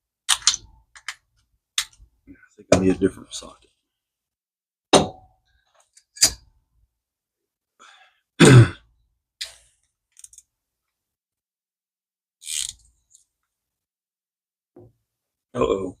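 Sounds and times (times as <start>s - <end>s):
person clearing throat: 8.4s - 8.9s.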